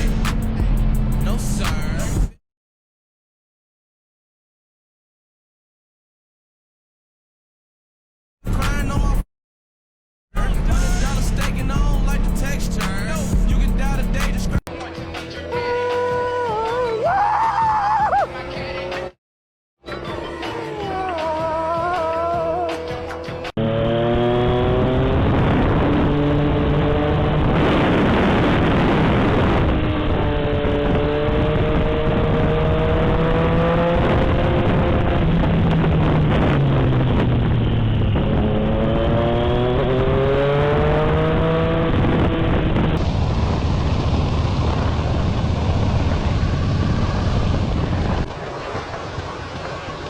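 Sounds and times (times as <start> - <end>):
wind and road noise: 0.0 - 2.4, 10.4 - 15.7, 19.8 - 50.0
motorcycle engine accelerating: 10.4 - 15.2, 19.8 - 50.0.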